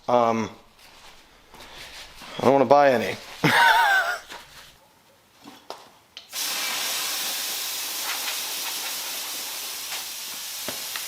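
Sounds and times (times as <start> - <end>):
aerosol can spraying: 6.3 - 11.0.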